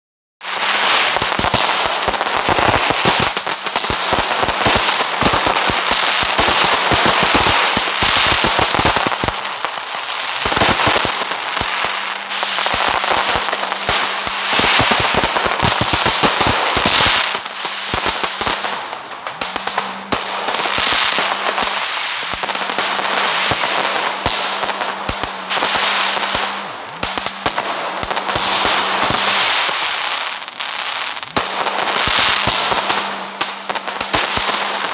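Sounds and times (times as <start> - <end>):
fireworks crackling and popping: 0.4 - 34.9
fireworks hiss: 0.4 - 34.9.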